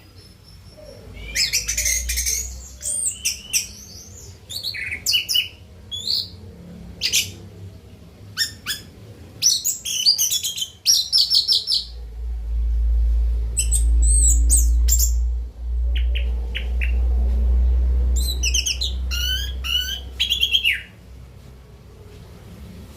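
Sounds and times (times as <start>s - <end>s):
bird singing whistled notes: 0.1s - 6.3s, 13.5s - 15.3s
steady low rumble: 11.6s - 20.3s.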